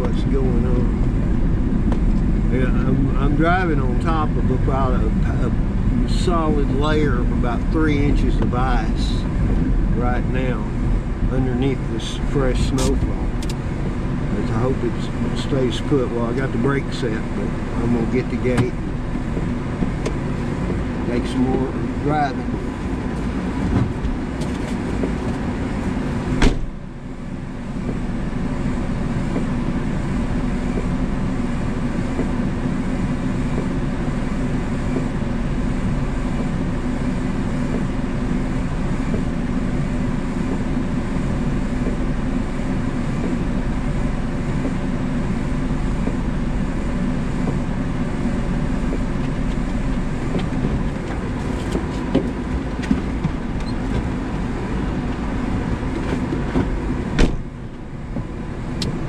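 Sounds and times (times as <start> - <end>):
small truck engine running: 0.0 - 59.0
truck door shutting: 26.3 - 26.8, 56.1 - 57.6.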